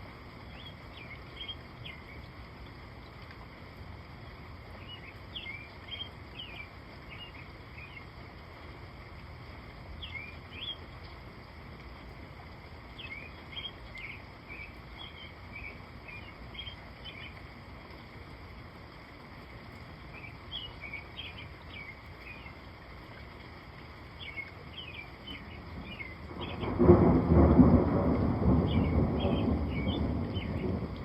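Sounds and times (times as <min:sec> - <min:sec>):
steady rain: 0:00.0 - 0:31.0
birds chirping: 0:24.2 - 0:26.8, 0:28.6 - 0:30.8.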